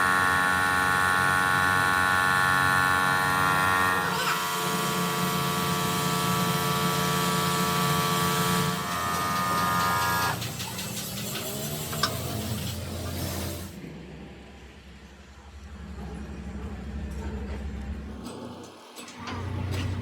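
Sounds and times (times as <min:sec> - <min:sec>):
machine motor humming: 0:00.1 - 0:10.4.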